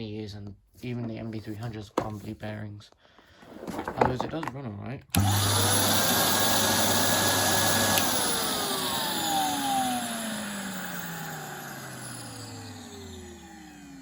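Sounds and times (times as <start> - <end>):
vacuum cleaner motor winding down: 5.1 - 14.0.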